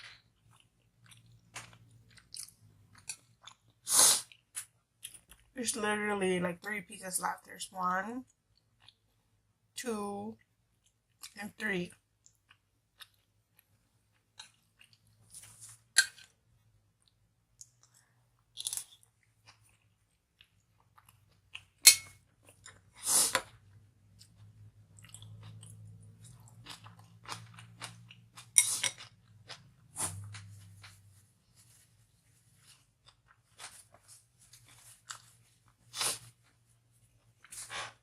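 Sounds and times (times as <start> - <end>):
food crunching: 0.0 - 5.5, 12.2 - 16.4, 17.0 - 31.0, 32.6 - 36.6
person chewing food: 0.0 - 5.5, 8.3 - 9.5, 10.7 - 11.4, 12.0 - 38.0.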